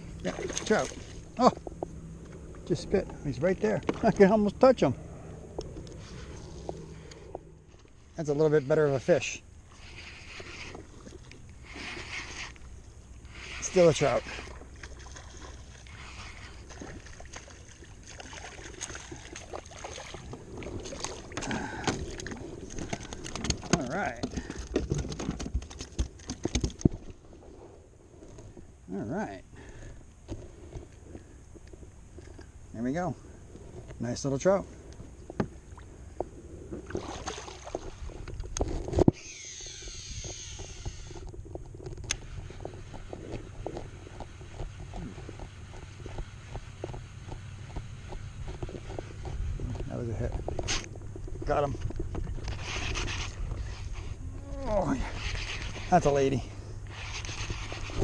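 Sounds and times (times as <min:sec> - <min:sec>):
water splashing: 0:00.0 - 0:01.7, 0:13.3 - 0:27.1, 0:36.8 - 0:38.3
knocks and clicks on kayak: 0:21.8 - 0:27.0
wind rumble on microphone: 0:34.6 - 0:58.0.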